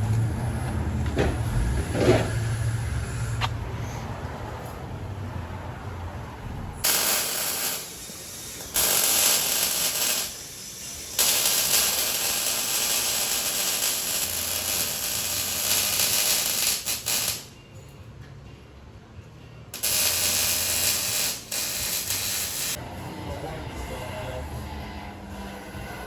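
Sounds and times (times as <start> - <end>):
pneumatic air tool whirring: 6.8 - 17.5, 19.8 - 22.8.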